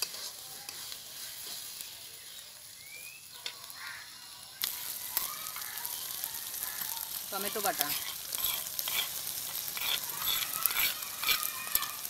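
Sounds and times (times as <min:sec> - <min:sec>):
food sizzling in hot oil: 0:00.0 - 0:12.0
metal spatula scraping pan: 0:07.8 - 0:12.0.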